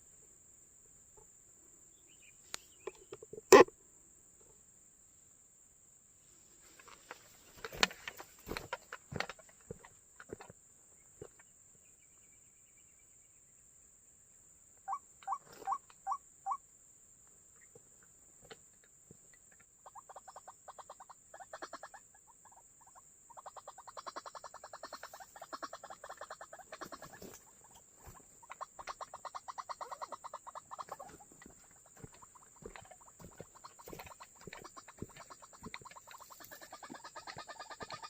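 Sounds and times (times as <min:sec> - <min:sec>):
waterhen calling: 0:23.4 - 0:38.0.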